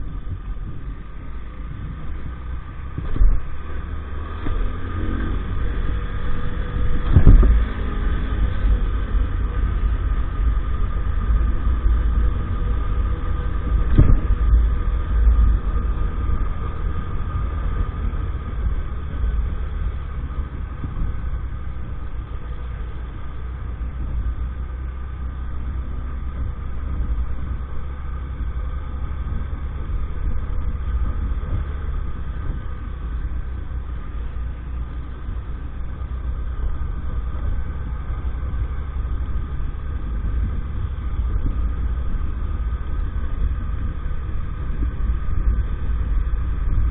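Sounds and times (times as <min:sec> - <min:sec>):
moped engine running: 0:00.0 - 0:46.9
sharp thumps: 0:06.8 - 0:09.0, 0:11.3 - 0:17.8.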